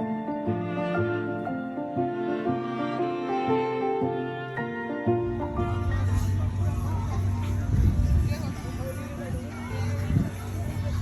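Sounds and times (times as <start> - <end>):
slow sustained background music: 0.0 - 7.3.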